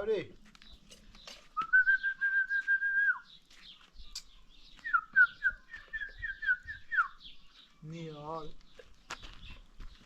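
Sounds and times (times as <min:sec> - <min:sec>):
faint bird chirps: 0:00.6 - 0:10.0
person whistling: 0:01.6 - 0:03.2.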